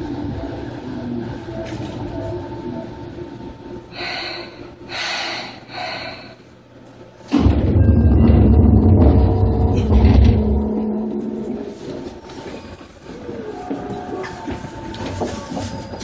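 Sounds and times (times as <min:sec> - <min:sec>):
loud low rumble: 0:07.3 - 0:12.1
train wheels rolling on rail: 0:08.2 - 0:16.0.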